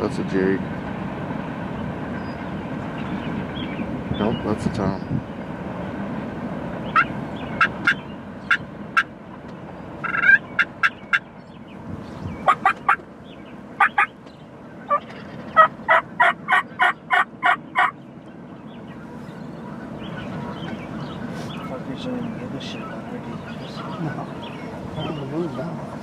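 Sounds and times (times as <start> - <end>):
wild turkey calling: 6.8 - 9.2, 9.8 - 11.7, 12.3 - 26.0.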